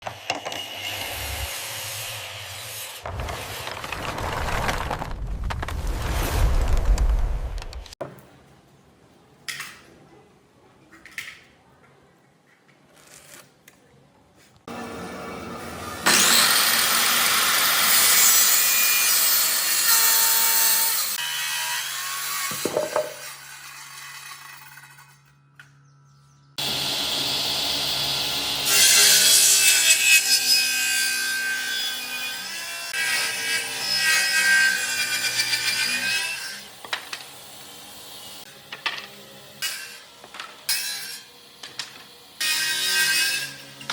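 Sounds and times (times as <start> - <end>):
power tool cutting wood: 14.7 - 24.6, 26.6 - 38.5.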